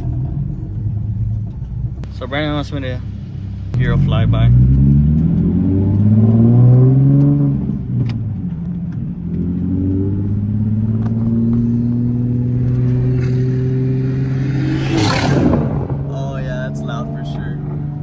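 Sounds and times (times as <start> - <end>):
car engine accelerating: 0.0 - 18.0
car passing with rushing noise: 10.1 - 18.0.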